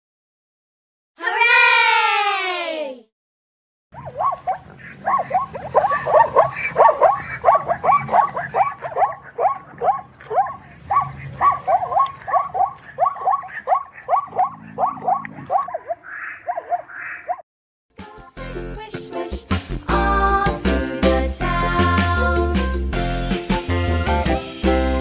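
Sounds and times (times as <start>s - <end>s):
zebra yelping barks: 4.0s - 17.4s.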